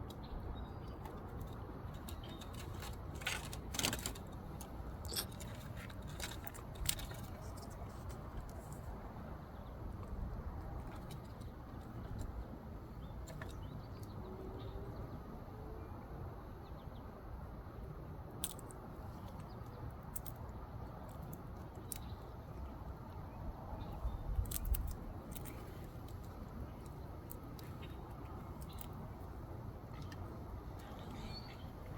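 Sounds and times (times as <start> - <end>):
low background noise: 0.0 - 31.9
squirrel gnawing clicks and crunches: 0.8 - 14.2, 18.3 - 23.2, 23.8 - 31.9.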